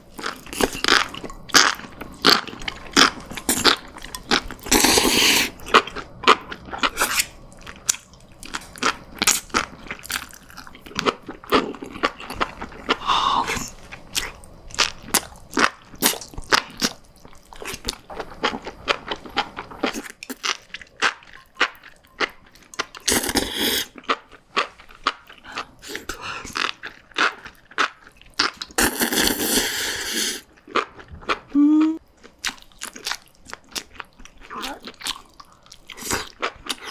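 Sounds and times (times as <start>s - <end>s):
chewing crunches: 32.2s - 36.9s.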